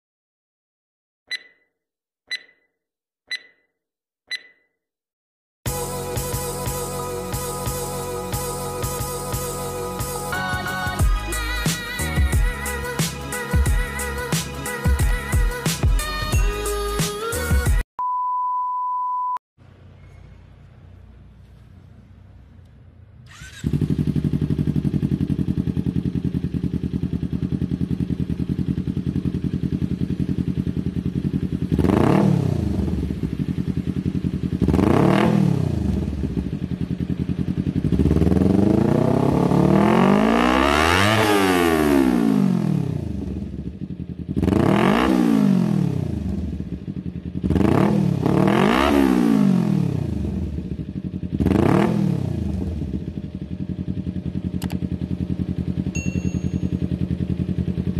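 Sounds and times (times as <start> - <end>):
motorcycle engine revving: 19.8 - 57.9.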